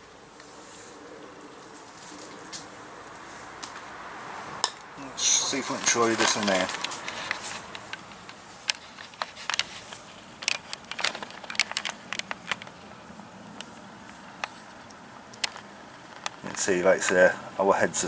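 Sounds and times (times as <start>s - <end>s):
faint room noise: 0.0s - 18.0s
light clicks and taps: 5.8s - 17.2s.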